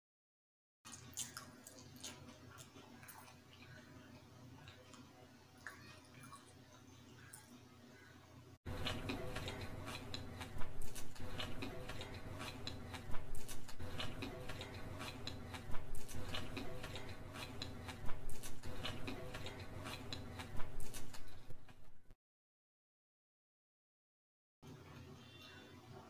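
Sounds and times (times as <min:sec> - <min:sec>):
chewing noodles mouth smacks: 0:00.9 - 0:03.8.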